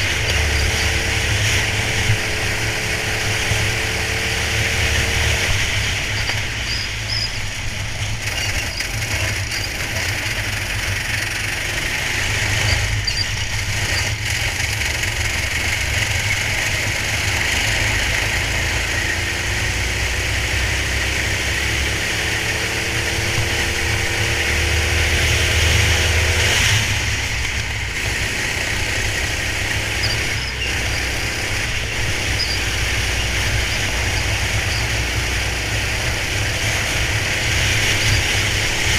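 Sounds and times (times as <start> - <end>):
go-kart engine running: 0.0 - 38.9.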